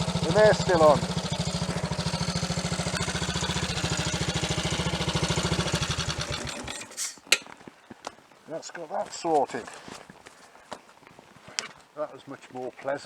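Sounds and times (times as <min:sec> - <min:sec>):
motorcycle engine idling: 0:00.0 - 0:07.0.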